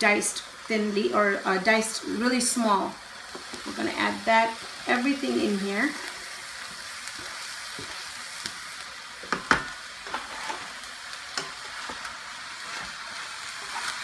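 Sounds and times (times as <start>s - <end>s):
food sizzling in a frying pan: 0.0s - 14.0s
wooden spoon knocking on pan: 9.2s - 9.8s.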